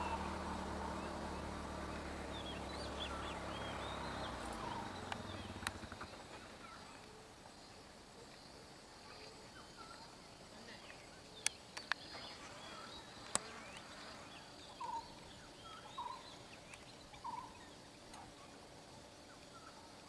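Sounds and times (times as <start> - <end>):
birds chirping and whistling: 0.0 - 6.2, 11.4 - 17.9
sharp clicks: 4.4 - 6.2.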